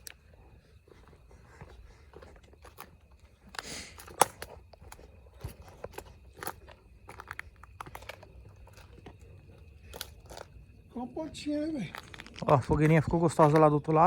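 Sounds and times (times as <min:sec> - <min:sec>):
footsteps crunching on dry leaves: 0:09.9 - 0:13.7.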